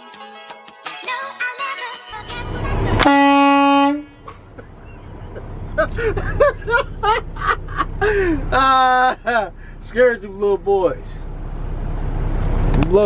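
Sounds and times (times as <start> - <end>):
truck engine rumble: 2.2 - 13.0
truck horn: 2.3 - 5.7.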